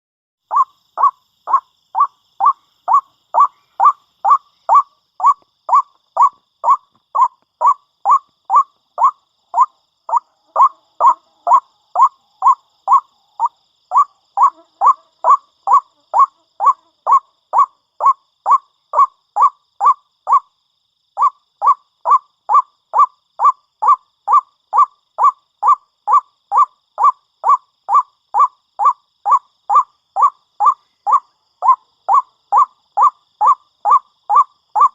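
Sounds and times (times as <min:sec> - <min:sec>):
waterhen repeated call: 0:00.5 - 0:20.4, 0:21.2 - 0:34.9.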